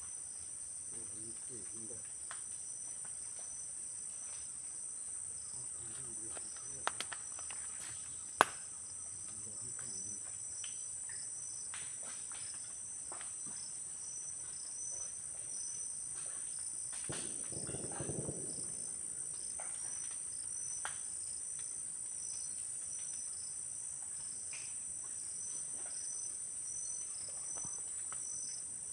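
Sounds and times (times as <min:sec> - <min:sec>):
insects chirring: 0:00.0 - 0:28.9
faint clicks: 0:05.9 - 0:08.6, 0:16.9 - 0:21.7.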